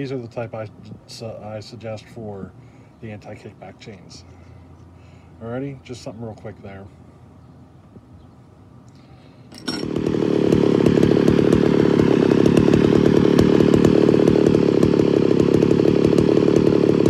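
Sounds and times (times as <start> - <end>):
electric chain sharpener running: 9.5 - 17.0.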